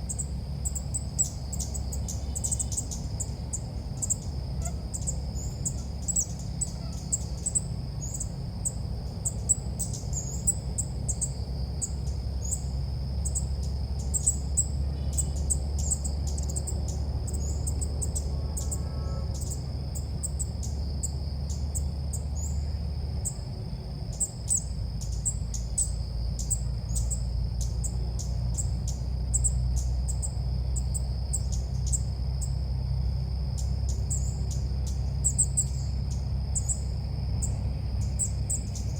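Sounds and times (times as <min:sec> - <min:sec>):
birds chirping: 0:00.1 - 0:23.5.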